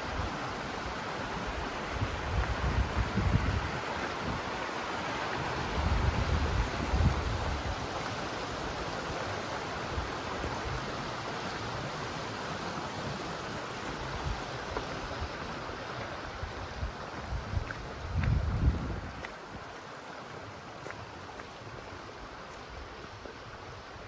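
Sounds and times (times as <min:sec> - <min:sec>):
fast-flowing river water: 0:00.0 - 0:24.0
wind buffeting microphone: 0:02.0 - 0:04.5, 0:05.4 - 0:07.9, 0:16.3 - 0:19.6.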